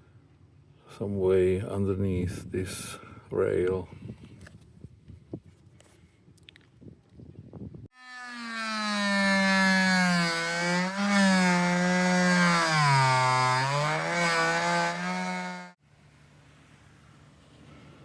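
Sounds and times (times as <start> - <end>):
power saw cutting wood: 7.9 - 15.8.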